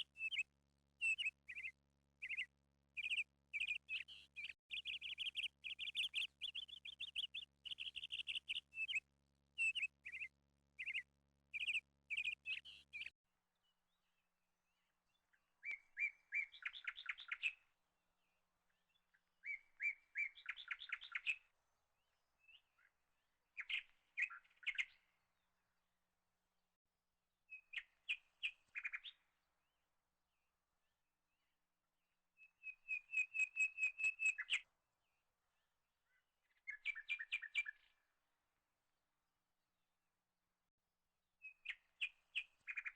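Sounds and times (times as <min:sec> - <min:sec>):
bird chirping: 0:00.0 - 0:25.2, 0:27.5 - 0:29.4, 0:32.4 - 0:34.7, 0:35.6 - 0:38.1, 0:41.4 - 0:42.9.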